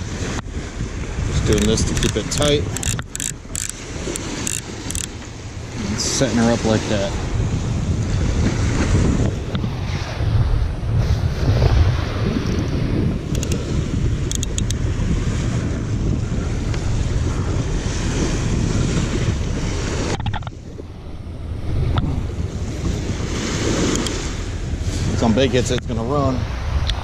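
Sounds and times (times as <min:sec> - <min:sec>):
sea surf: 0:00.0 - 0:27.0
wind buffeting microphone: 0:00.0 - 0:27.0
faint high ticks: 0:01.5 - 0:05.2, 0:13.3 - 0:13.6, 0:14.3 - 0:14.8.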